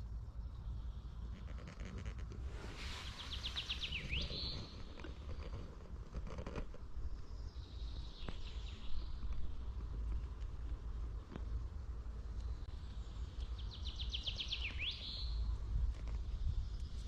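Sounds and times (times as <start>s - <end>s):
bird singing: 0.0s - 1.9s, 2.9s - 5.8s, 6.9s - 10.3s, 12.2s - 17.0s
small crunches and clicks: 3.6s - 7.3s, 8.2s - 13.6s, 15.8s - 17.0s
steady low rumble: 6.8s - 17.0s.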